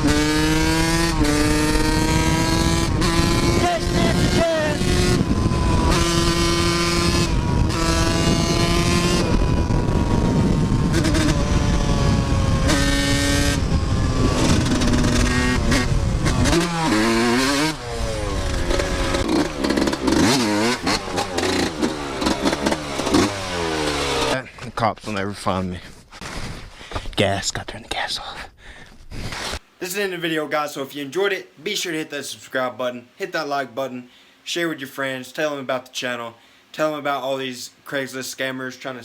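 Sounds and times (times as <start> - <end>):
dirt bike engine revving: 0.0 - 24.5.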